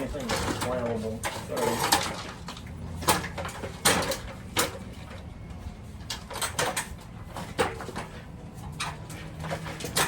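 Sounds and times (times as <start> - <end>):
tools knocking and clattering: 0.0 - 5.3, 6.0 - 10.0
steady low hum: 2.1 - 10.0.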